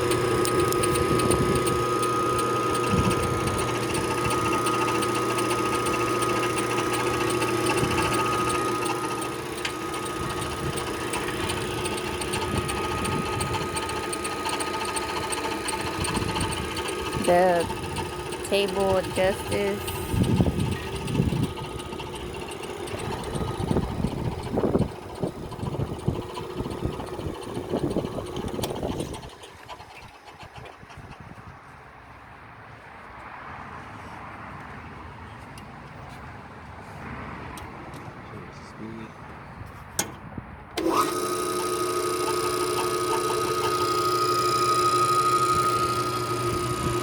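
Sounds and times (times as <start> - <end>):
drill press motor hum: 0.0 - 30.9, 40.8 - 47.0.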